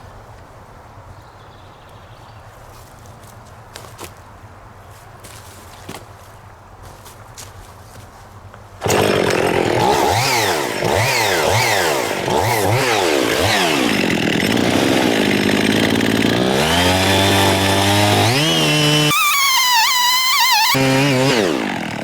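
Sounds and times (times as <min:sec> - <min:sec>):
chainsaw cutting stump: 0:08.8 - 0:22.0.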